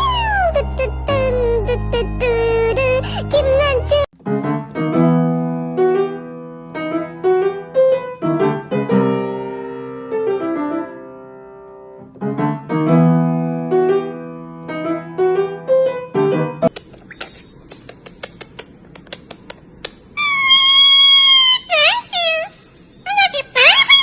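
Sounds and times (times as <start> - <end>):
piano playing slow melody: 0.0 - 16.7.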